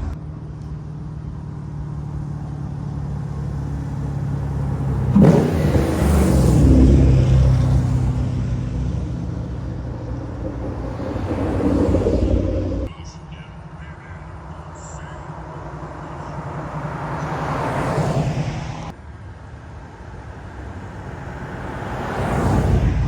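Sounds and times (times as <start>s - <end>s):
car engine driving past: 3.0s - 12.9s, 20.4s - 23.0s.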